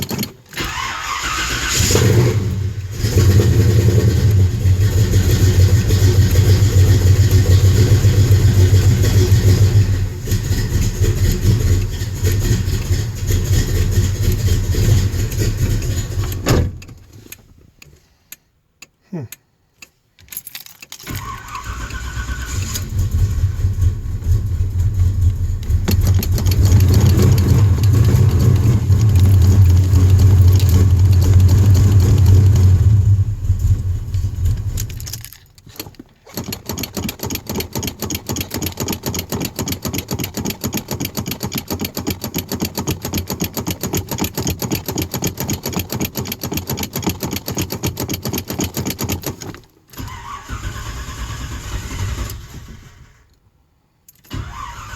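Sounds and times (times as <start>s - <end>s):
starter motor cranking: 0.0s - 2.5s, 21.0s - 23.8s, 25.6s - 32.9s, 34.4s - 53.2s, 54.3s - 54.9s
car engine running rough: 0.7s - 16.4s, 22.6s - 35.0s.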